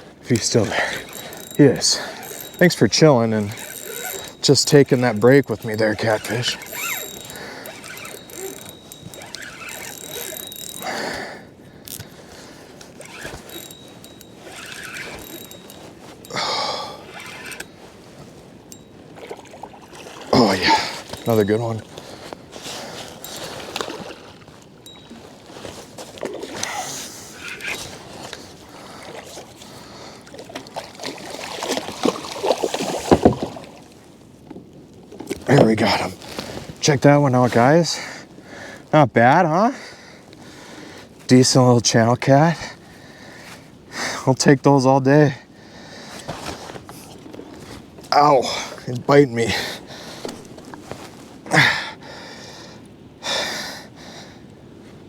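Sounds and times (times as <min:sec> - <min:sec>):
fishing reel ratcheting: 0:00.3 - 0:12.2, 0:12.9 - 0:17.7, 0:20.4 - 0:21.7, 0:26.6 - 0:27.8
water splashing: 0:19.2 - 0:21.9, 0:30.3 - 0:33.9.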